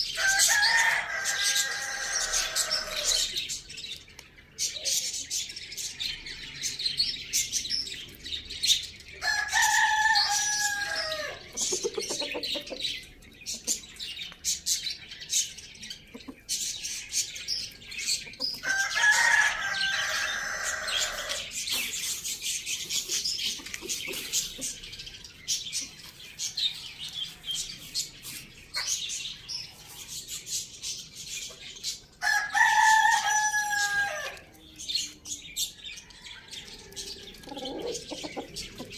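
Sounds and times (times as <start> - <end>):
small birds chirping: 0.0 - 38.9
rooster crowing: 0.2 - 3.2, 9.2 - 11.4, 18.6 - 21.5, 32.2 - 34.4.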